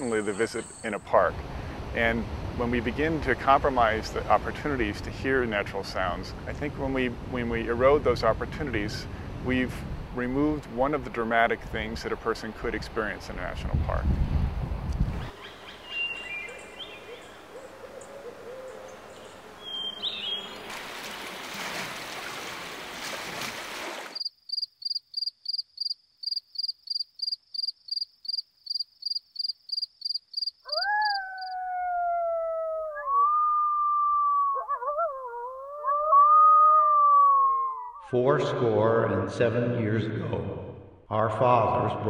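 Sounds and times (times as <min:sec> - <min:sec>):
noisy outdoor wash: 0:00.0 - 0:24.2
wolf howling: 0:30.7 - 0:38.0.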